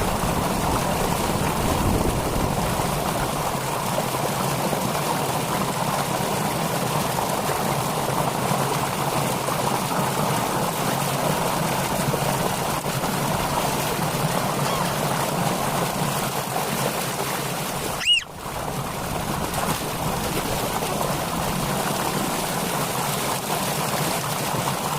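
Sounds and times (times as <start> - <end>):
water rushing: 0.0 - 24.9
loud high-pitched squeak: 18.0 - 18.3.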